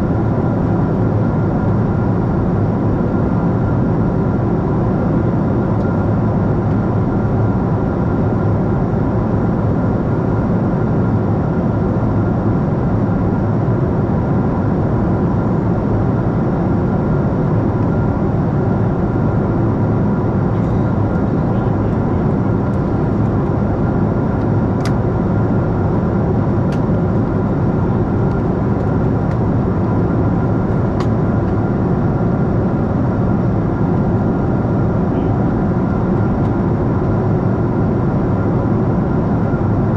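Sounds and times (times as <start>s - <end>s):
airliner cabin engine rush: 0.0s - 39.9s
faint steady tonal hum: 17.3s - 38.7s.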